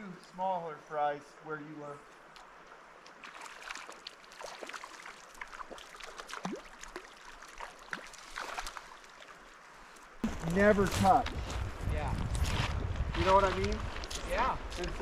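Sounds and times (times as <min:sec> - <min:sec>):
river water gurgling and splashing: 0:02.0 - 0:11.2.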